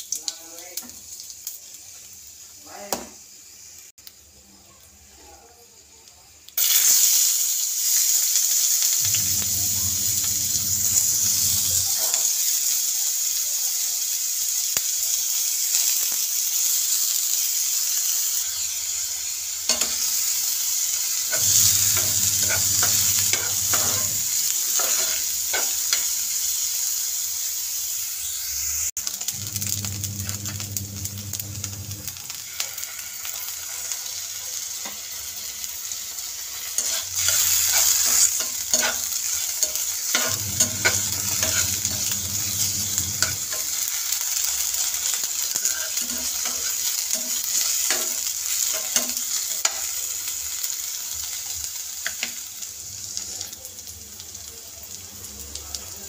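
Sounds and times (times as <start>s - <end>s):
onion sizzling in hot oil: 0.0s - 56.0s
spatula scraping metal pan: 21.3s - 26.0s, 36.8s - 43.8s, 45.5s - 48.2s.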